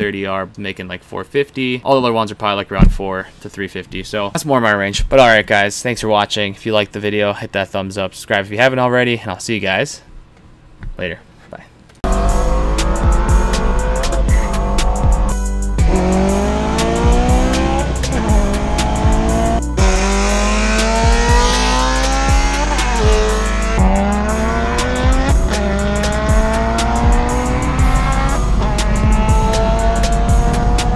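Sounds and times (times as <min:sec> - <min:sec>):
car engine under full throttle: 0:12.0 - 0:30.9
music with steady beat: 0:12.0 - 0:30.9.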